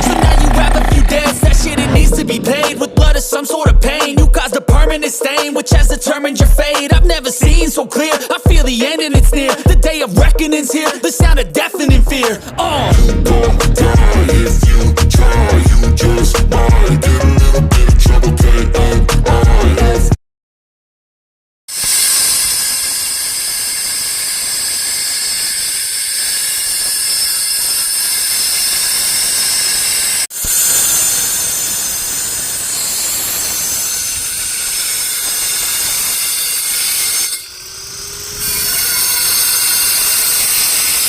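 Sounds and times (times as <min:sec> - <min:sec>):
power tools grinding concrete: 0:00.0 - 0:03.3, 0:21.7 - 0:41.0.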